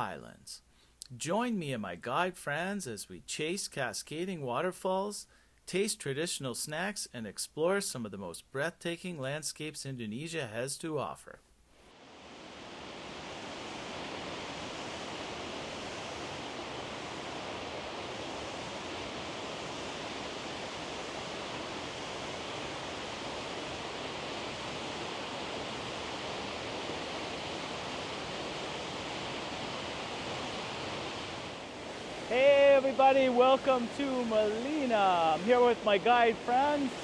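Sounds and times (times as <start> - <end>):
waterfall rushing: 12.0 - 37.0.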